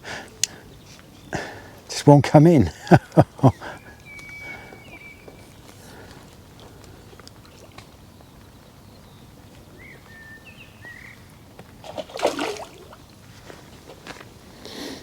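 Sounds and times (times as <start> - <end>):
faint bird chirps: 3.4 - 6.0, 7.9 - 11.4.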